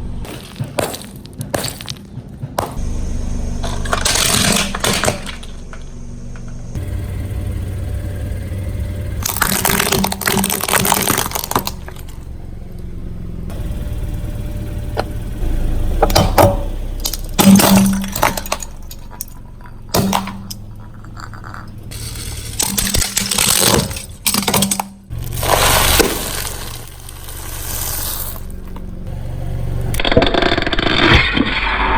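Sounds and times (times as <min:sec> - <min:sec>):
tyre crunching objects: 0:00.0 - 0:06.8, 0:09.2 - 0:12.9, 0:16.0 - 0:29.2
car engine humming: 0:00.0 - 0:30.3.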